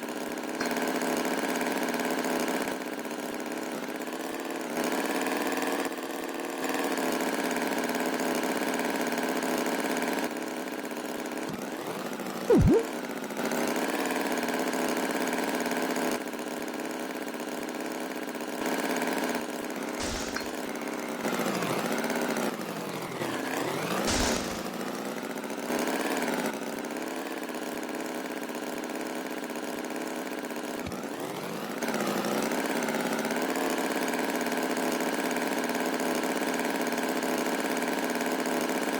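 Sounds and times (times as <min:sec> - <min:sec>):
brief sweeping sounds: 0:12.5 - 0:12.9
short sharp sound: 0:12.5 - 0:12.9
engine running: 0:20.0 - 0:25.2.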